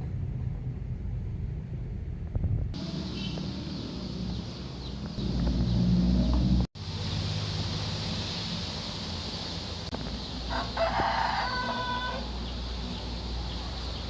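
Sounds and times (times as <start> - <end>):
low rumble: 0.0 - 7.2
steady rain hiss: 6.8 - 14.0
faint chicken: 10.5 - 12.4.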